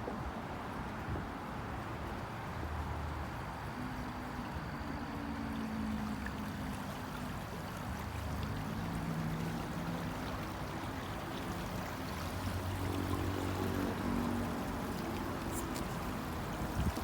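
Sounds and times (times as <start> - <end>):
flowing stream rushing: 4.2 - 17.0.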